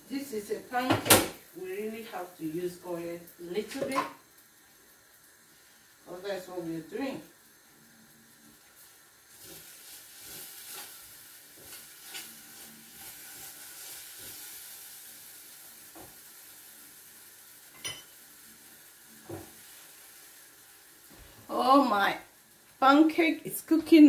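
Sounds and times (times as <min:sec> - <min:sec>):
batter sizzling in oil: 0:00.0 - 0:23.8.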